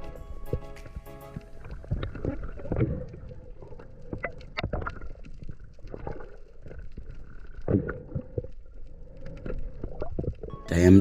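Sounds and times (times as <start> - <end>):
underwater knocks and clicks: 0.0 - 8.6
low gurgling rumble: 1.4 - 10.5.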